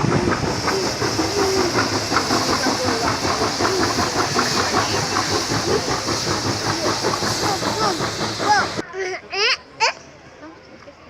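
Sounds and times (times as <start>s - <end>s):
train wheels clattering on rails: 0.0s - 8.8s.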